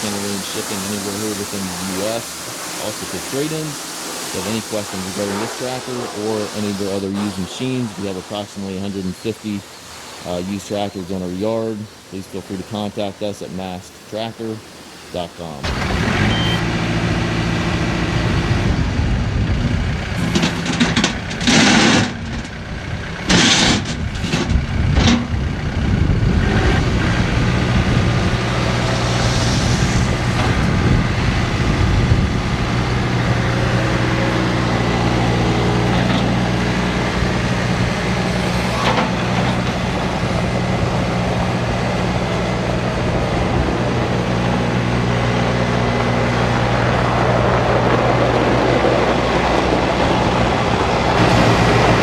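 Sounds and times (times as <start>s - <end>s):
tractor diesel engine running: 0.0s - 12.0s, 15.6s - 52.0s
loud bursts of hiss: 0.0s - 16.6s, 27.6s - 31.8s.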